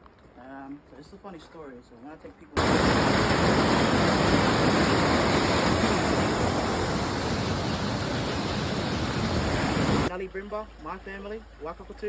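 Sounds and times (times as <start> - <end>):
running water rushing: 2.6 - 10.1.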